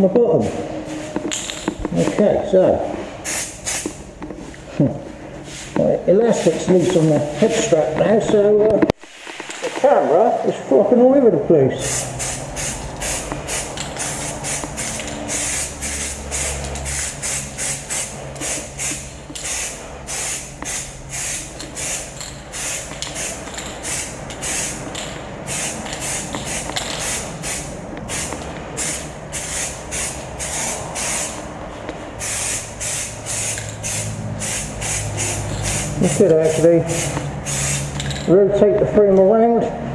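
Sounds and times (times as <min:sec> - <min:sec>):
spray can hissing in bursts: 0:03.2 - 0:04.0, 0:11.8 - 0:24.8, 0:25.4 - 0:31.4, 0:32.2 - 0:38.0.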